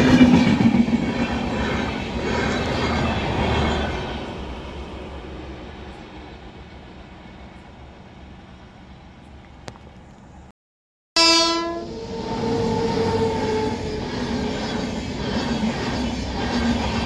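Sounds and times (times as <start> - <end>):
distant train rumble: 0.0 - 10.5, 11.6 - 17.0
train horn blast: 11.2 - 14.1.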